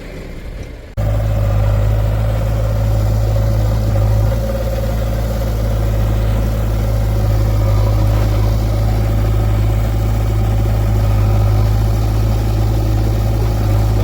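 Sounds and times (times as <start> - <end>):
diesel engine low hum: 0.0 - 14.0.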